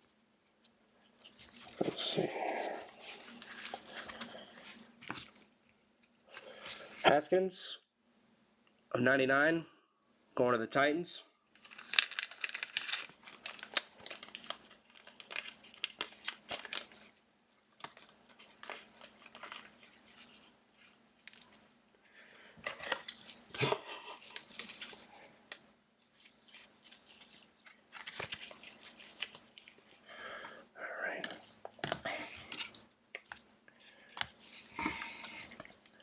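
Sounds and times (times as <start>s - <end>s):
faint steady hum: 0.0s - 36.0s
foil wrappers crinkling and rustling: 1.1s - 5.5s, 11.6s - 21.8s, 22.6s - 25.3s, 26.0s - 30.1s.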